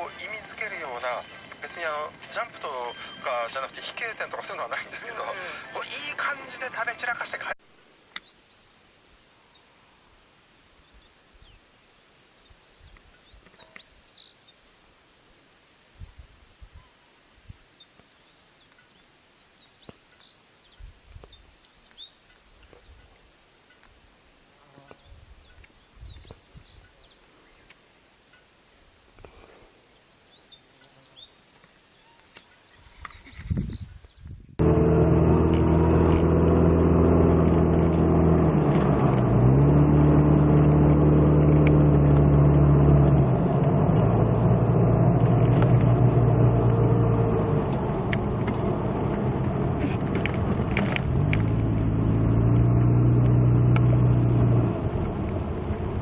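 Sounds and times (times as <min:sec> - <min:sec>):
faint steady hiss: 0:00.0 - 0:34.3
small birds chirping: 0:00.2 - 0:04.3, 0:08.1 - 0:08.8, 0:10.7 - 0:15.2, 0:16.4 - 0:24.0, 0:24.8 - 0:28.5, 0:29.2 - 0:34.5.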